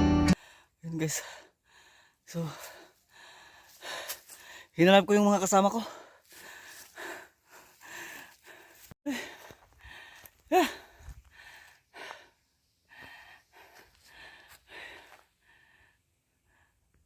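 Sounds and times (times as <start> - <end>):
person breathing hard: 0.3 - 4.8, 5.8 - 17.0.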